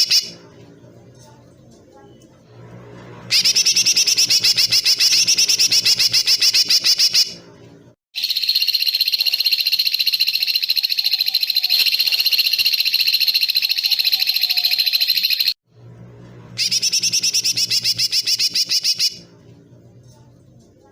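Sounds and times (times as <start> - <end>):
fast pulsed high animal trill: 8.2 - 15.6
steady rapid animal trill: 8.2 - 15.6.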